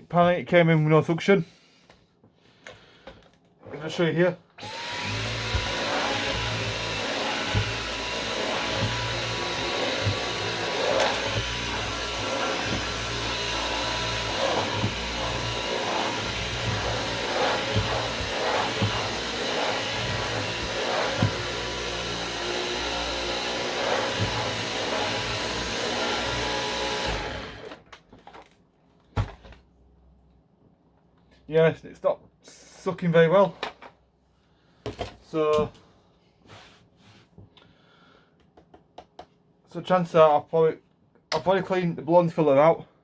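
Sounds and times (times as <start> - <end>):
vacuum cleaner motor whine: 4.6 - 27.8.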